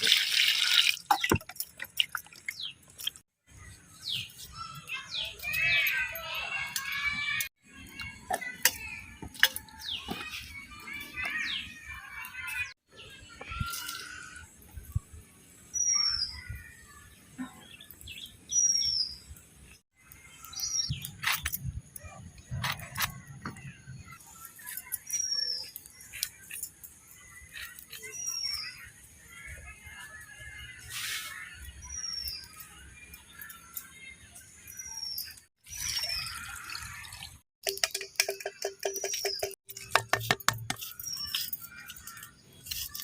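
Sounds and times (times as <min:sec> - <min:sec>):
bird chirping: 0:37.7 - 0:43.0.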